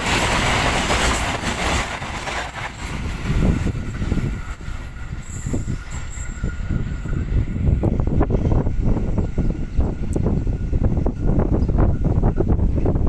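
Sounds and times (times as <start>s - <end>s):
knocks of passing train: 0.0s - 13.0s
train wheels on rails: 0.0s - 13.0s.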